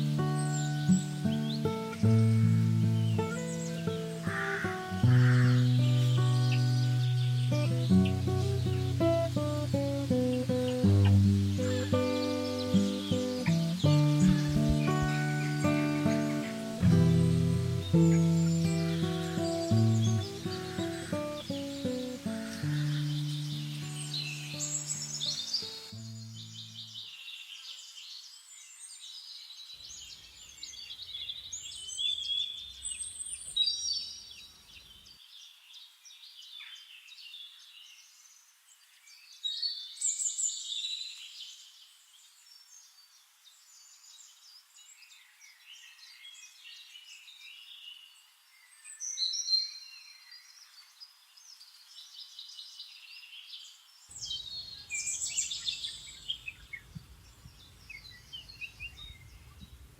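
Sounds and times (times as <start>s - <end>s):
birds chirping and whistling: 0.0s - 27.1s, 54.1s - 59.8s.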